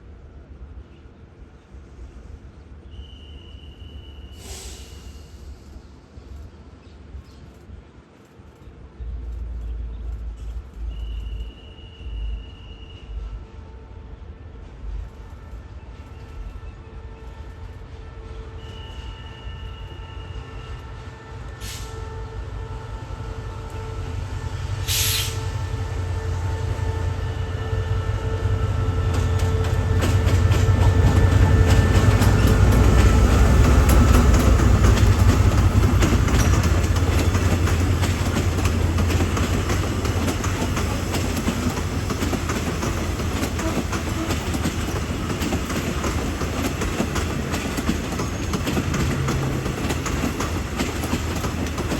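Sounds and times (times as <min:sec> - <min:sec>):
train rumbling past: 0:00.0 - 0:51.9
brief hiss: 0:02.8 - 0:06.0, 0:21.6 - 0:22.0, 0:24.8 - 0:25.6
wheels clicking over rail joints: 0:29.1 - 0:51.9.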